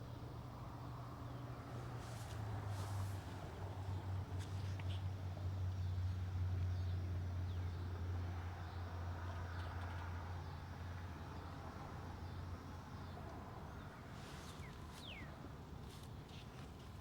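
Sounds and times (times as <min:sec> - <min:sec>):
soft hiss: 0:00.0 - 0:05.9.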